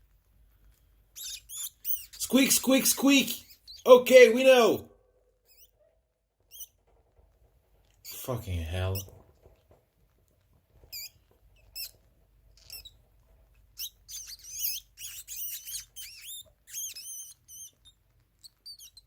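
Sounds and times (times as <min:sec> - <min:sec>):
small rodent squeaking: 0:01.1 - 0:04.4, 0:05.4 - 0:06.9, 0:08.0 - 0:09.2, 0:10.8 - 0:19.0.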